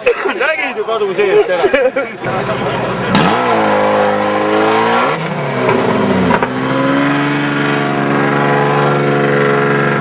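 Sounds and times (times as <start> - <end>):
car engine revving hard: 2.2 - 10.0.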